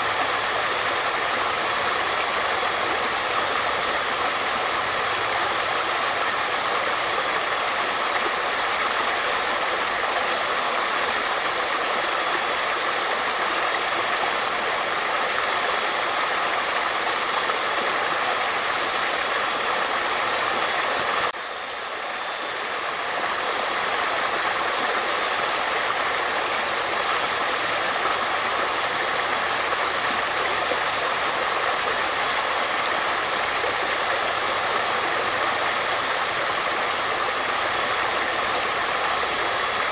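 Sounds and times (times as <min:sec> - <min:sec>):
stream rushing and babbling: 0:00.0 - 0:39.9.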